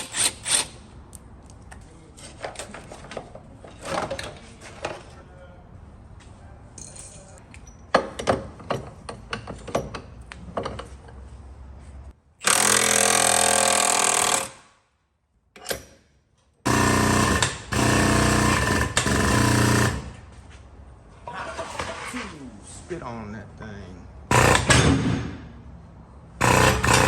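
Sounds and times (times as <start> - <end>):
handheld power tool on metal: 16.7 - 20.2, 24.3 - 25.1, 26.4 - 27.0.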